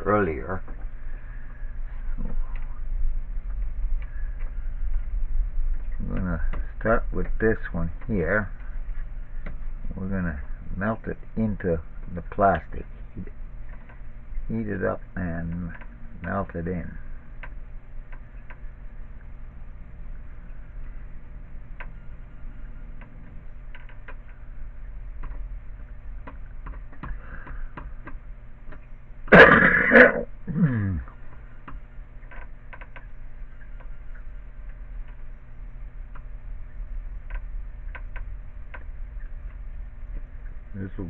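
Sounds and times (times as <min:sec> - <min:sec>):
soldering gun electric hum: 0:00.0 - 0:41.0
man clearing his throat: 0:29.3 - 0:31.1.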